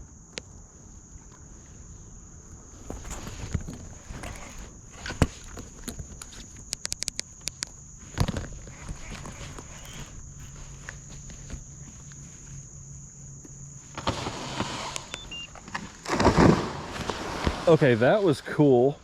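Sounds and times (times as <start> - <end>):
high insect drone: 0.0 - 19.0
wood cracking and snapping: 2.8 - 11.9
falling tree crash: 13.9 - 17.8.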